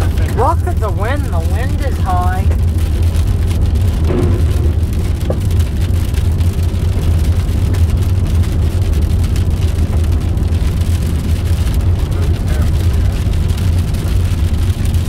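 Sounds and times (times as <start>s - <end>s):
car driving on gravel: 0.0s - 15.0s
rain ticking on car: 0.0s - 15.0s.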